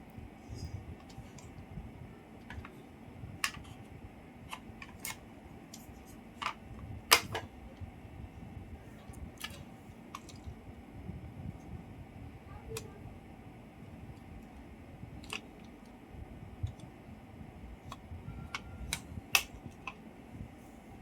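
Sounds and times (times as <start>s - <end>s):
low rumbling background: 0.0s - 21.0s.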